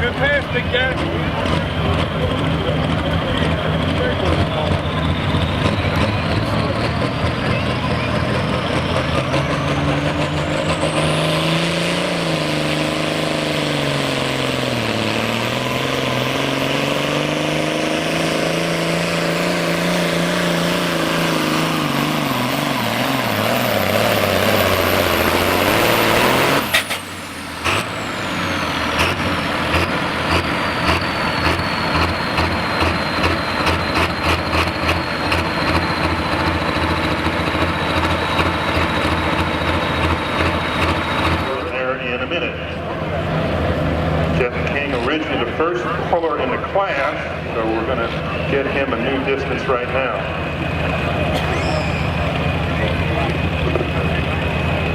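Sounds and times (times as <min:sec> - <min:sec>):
diesel tractor engine under load: 0:00.0 - 0:54.9
engine pulsing idle: 0:26.6 - 0:54.9
high turbo whistle: 0:51.4 - 0:52.6.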